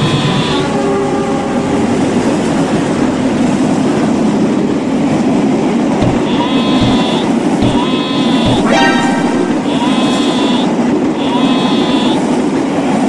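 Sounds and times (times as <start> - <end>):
diesel locomotive rumbling: 0.0 - 13.0
low thumps: 6.0 - 7.8
locomotive horn tone: 6.1 - 12.4.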